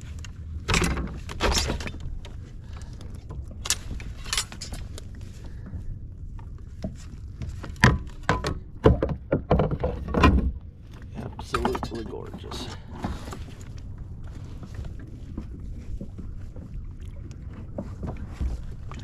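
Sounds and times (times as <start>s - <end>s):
steady low rumble: 0.0s - 8.8s, 9.8s - 19.0s
gear knocking and clinking: 3.5s - 5.1s.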